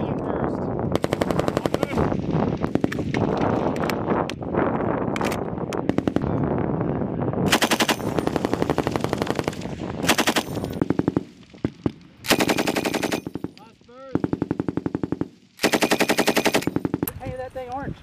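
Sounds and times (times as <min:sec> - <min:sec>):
machine guns firing bursts: 0:01.0 - 0:02.0, 0:05.9 - 0:06.2, 0:07.5 - 0:17.1.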